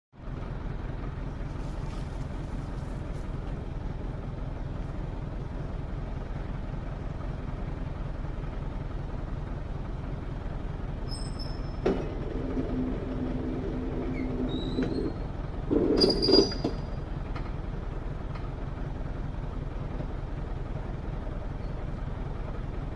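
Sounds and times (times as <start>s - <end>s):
heavy machinery drone: 10.1s - 19.1s
machinery clunk: 11.2s - 17.6s.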